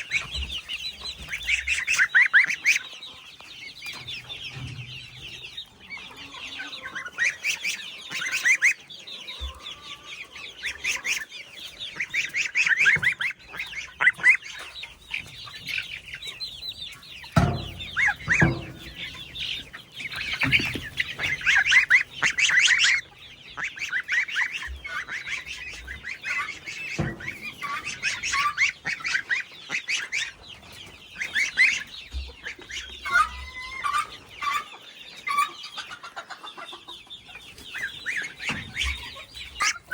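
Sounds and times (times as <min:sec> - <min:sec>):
chicks peeping: 0:00.0 - 0:39.9
dull knocks: 0:17.4 - 0:19.6.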